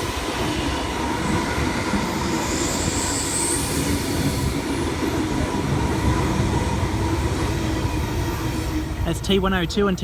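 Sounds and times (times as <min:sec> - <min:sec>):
train wheels rumbling on track: 0:00.0 - 0:10.0
faint high wheel squeal: 0:02.3 - 0:04.5.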